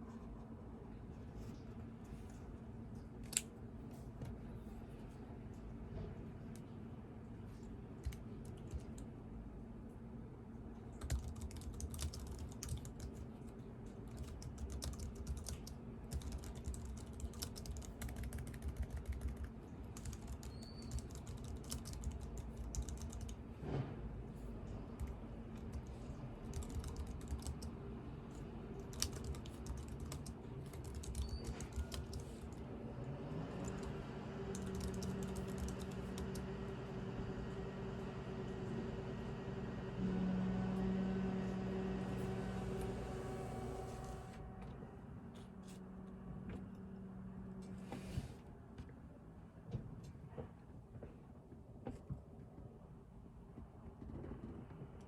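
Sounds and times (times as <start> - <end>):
keyboard typing: 11.0 - 13.2, 14.0 - 23.4, 25.0 - 27.7, 28.8 - 32.6, 33.6 - 36.5
low hum: 32.5 - 48.0.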